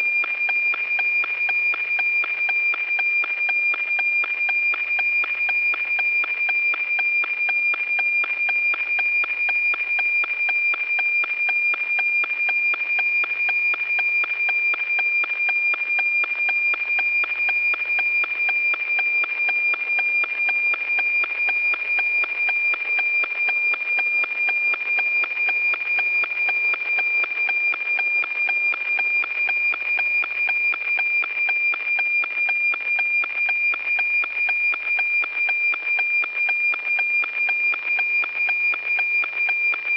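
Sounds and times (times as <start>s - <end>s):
satellite radio signal ticking tone: 0.0s - 39.9s.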